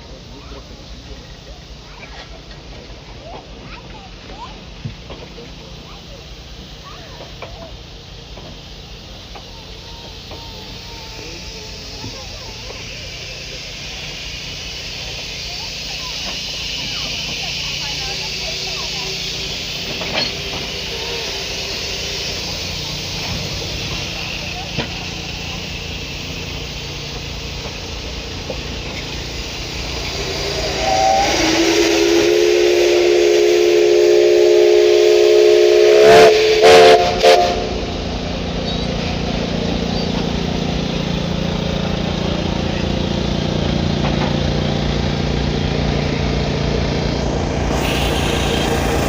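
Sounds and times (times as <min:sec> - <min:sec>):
train running and hissing: 0:00.0 - 0:49.0
locomotive whistle: 0:09.6 - 0:27.6, 0:28.3 - 0:38.0, 0:47.6 - 0:49.0.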